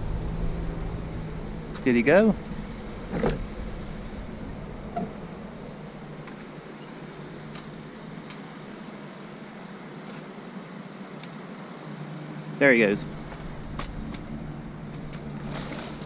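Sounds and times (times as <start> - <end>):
car engine idling: 0.0 - 8.8, 12.8 - 16.0.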